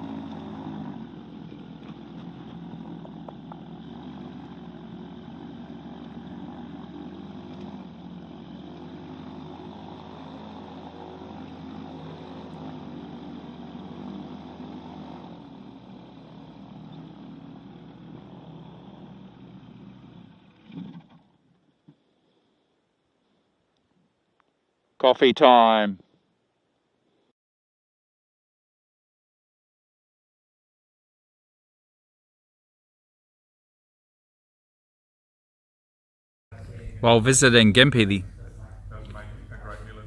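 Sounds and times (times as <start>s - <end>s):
propeller engine running: 0.0s - 22.7s, 36.5s - 40.0s.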